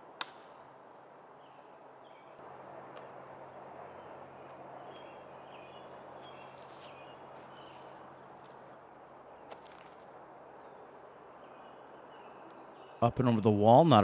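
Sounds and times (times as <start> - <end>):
background hiss: 0.0 - 14.0
small birds chirping: 3.4 - 13.2.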